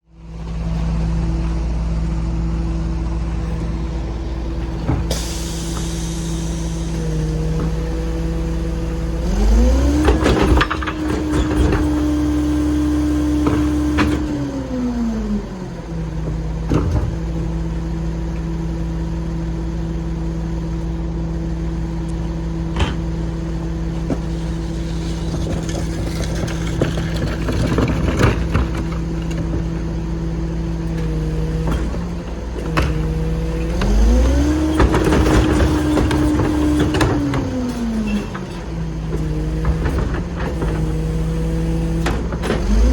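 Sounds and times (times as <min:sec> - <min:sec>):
garbage truck engine idling and revving: 0:00.0 - 0:42.9
clanks and bangs of carts: 0:09.4 - 0:14.7, 0:16.1 - 0:17.7, 0:22.6 - 0:30.2, 0:30.9 - 0:42.9.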